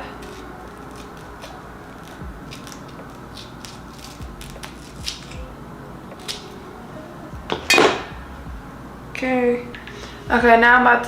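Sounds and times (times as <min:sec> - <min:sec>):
scissors snipping: 0:00.0 - 0:05.5, 0:06.1 - 0:06.6.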